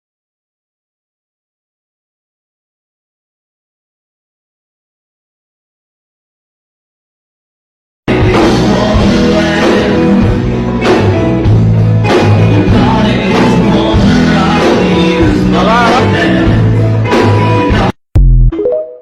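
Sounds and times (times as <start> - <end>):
pop-rock song with singing: 8.1 - 17.9.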